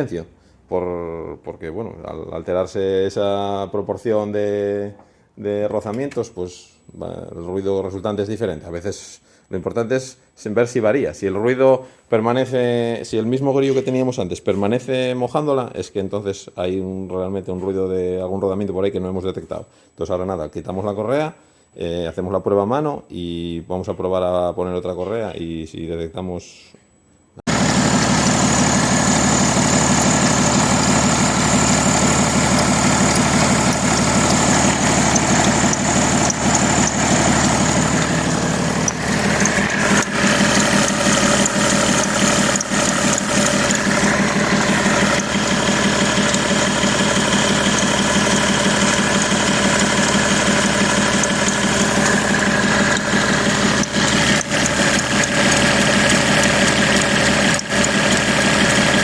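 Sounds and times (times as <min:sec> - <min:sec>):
diesel engine idling: 0:27.5 - 0:59.0.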